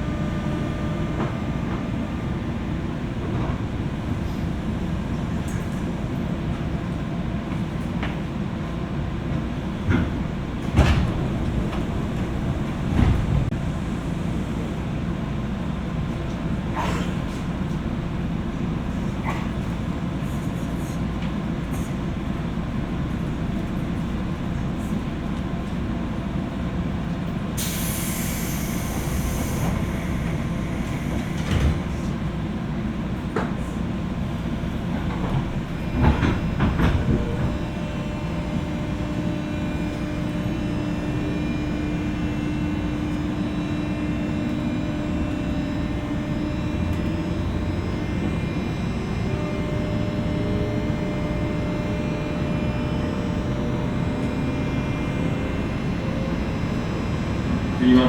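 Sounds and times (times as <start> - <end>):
train wheel and track rumble: 0.0 - 58.0
steady whining tones: 28.5 - 58.0.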